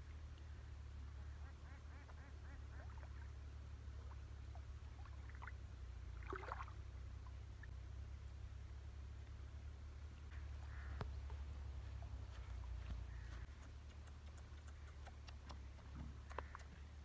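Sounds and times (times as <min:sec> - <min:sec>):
steady low hum: 0:00.0 - 0:17.0
faint bird calls: 0:10.3 - 0:17.0.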